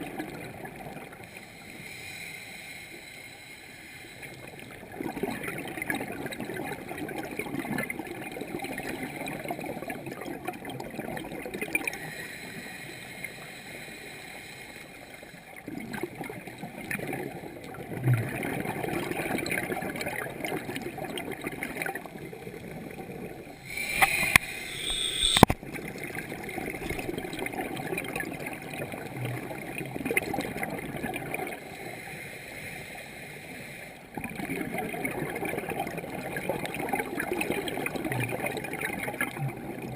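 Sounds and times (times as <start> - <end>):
water gurgling and bubbling: 4.5 - 12.0, 15.6 - 31.6, 34.1 - 39.9
hissing noise burst: 23.6 - 25.6.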